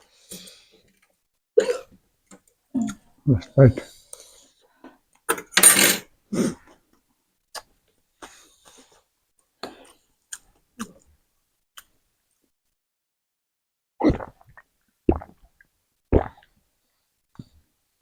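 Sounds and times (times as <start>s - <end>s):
mouth sounds of eating noodles: 14.0s - 15.3s.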